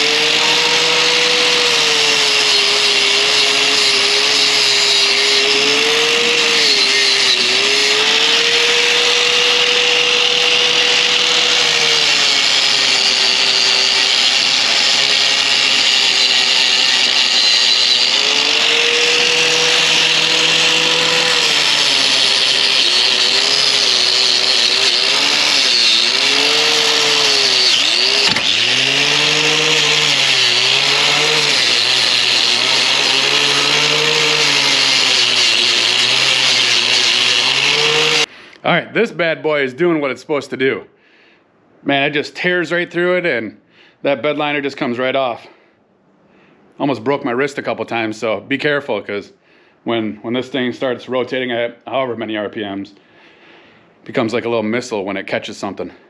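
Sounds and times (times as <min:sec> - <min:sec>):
wire wheel grinder scouring metal: 0:00.0 - 0:38.3.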